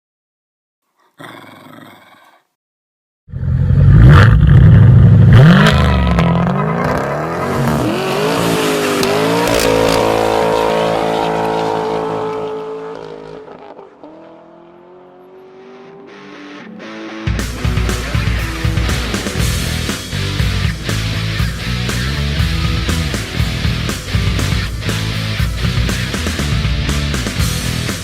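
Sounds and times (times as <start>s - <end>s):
loud car engine accelerating: 3.3s - 28.0s.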